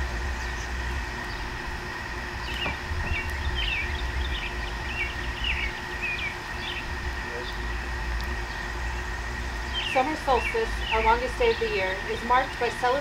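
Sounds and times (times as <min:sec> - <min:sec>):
low outdoor rumble: 0:00.0 - 0:13.0
songbird chirping: 0:02.4 - 0:12.2.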